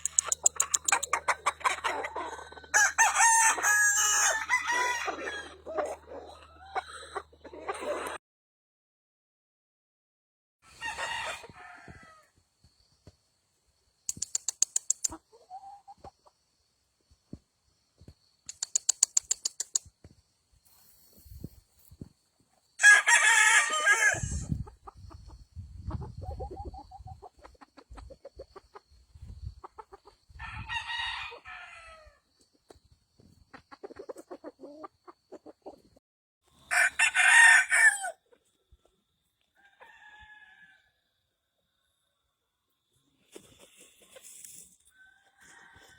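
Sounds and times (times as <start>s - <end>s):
roosters crowing: 0.0s - 8.1s, 10.7s - 12.4s, 22.8s - 24.6s, 30.4s - 32.2s, 36.6s - 38.2s, 39.6s - 41.0s, 44.9s - 45.9s
chickens clucking: 0.0s - 8.2s, 14.1s - 16.6s, 18.5s - 19.9s, 24.2s - 30.7s, 32.4s - 36.0s.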